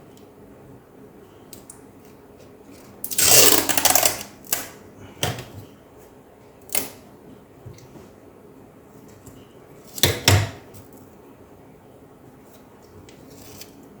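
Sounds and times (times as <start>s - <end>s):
adhesive tape ripping: 3.1s - 4.7s.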